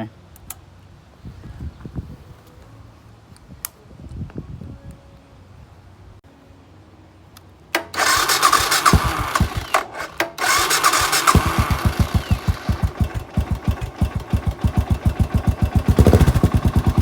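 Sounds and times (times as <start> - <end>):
starter motor cranking: 7.8 - 17.0
motorcycle engine idling: 8.8 - 9.7, 10.5 - 17.0.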